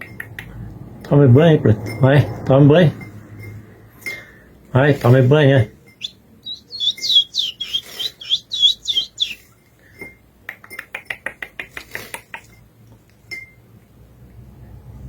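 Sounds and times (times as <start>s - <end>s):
finch singing whistled notes: 5.9s - 9.5s.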